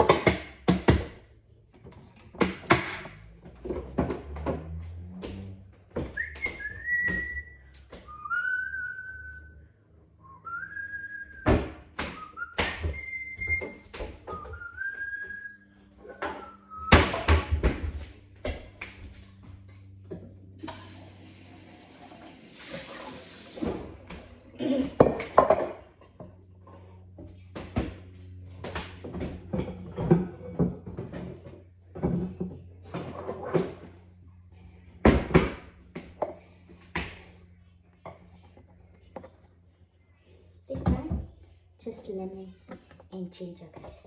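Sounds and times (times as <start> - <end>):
person whistling a tune: 6.2 - 9.6, 10.2 - 11.5, 12.1 - 15.6.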